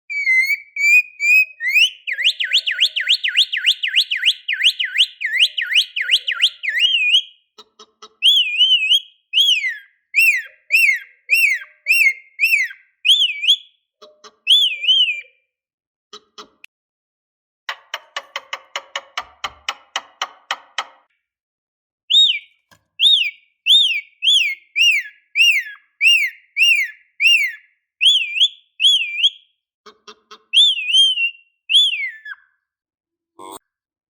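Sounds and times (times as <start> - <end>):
lovebird shrill whistled notes: 0.1 - 7.3, 8.2 - 13.6, 14.5 - 15.3, 22.1 - 29.4, 30.6 - 32.4.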